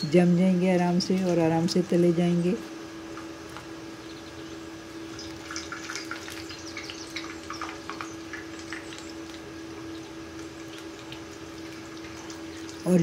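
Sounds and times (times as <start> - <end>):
steady low hum: 0.0 - 13.0
food sizzling in hot fat: 3.2 - 13.0.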